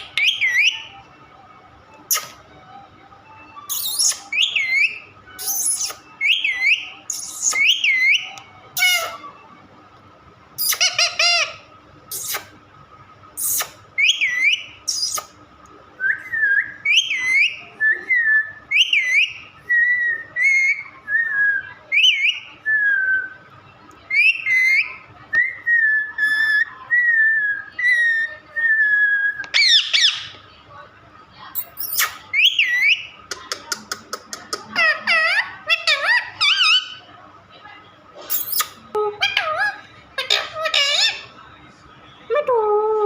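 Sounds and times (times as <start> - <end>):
parrot whistling: 0.0 - 1.0, 3.4 - 9.4, 10.6 - 12.5, 13.4 - 15.3, 16.1 - 23.4, 24.1 - 30.4, 31.6 - 33.2
parrot harsh calls: 3.7 - 9.2, 10.6 - 12.5, 29.0 - 30.3, 34.7 - 37.0, 38.3 - 41.3.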